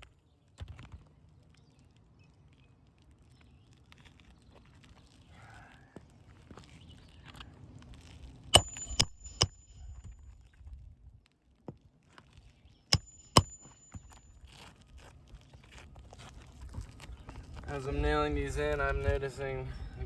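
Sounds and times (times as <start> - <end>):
hammer striking nails: 8.6 - 9.8, 13.0 - 14.2
short metallic ring: 8.6 - 10.2, 13.0 - 14.4.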